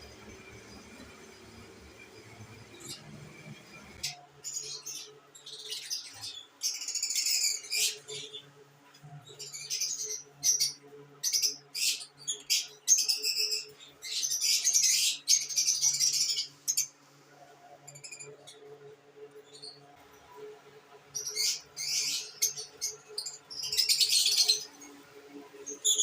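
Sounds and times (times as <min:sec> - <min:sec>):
lovebirds chattering and chirping: 0:09.2 - 0:16.9, 0:21.1 - 0:25.0.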